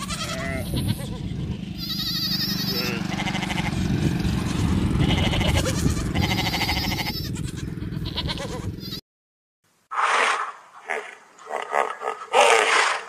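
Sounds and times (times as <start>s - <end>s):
sheep bleating: 0.0s - 3.8s, 4.5s - 9.0s.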